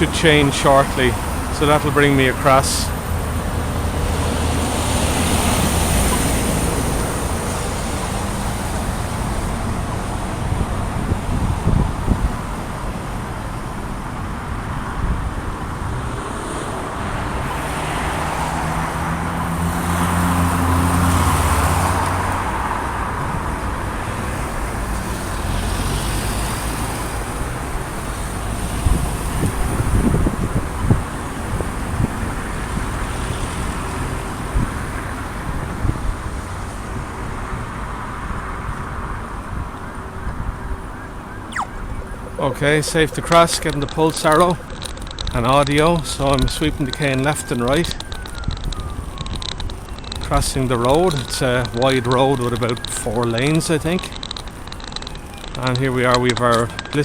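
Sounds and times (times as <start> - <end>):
road traffic passing: 0.0 - 57.0
vehicle passing close by: 15.7 - 30.4
scattered clicks: 43.0 - 57.0.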